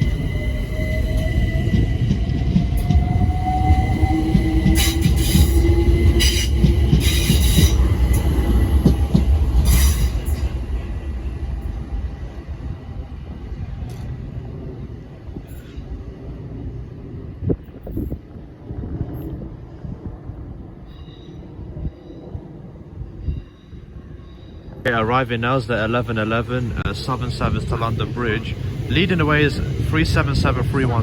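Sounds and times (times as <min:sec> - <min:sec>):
electric train motor whine: 0:00.0 - 0:10.5
heavy rail rumble: 0:00.0 - 0:31.0.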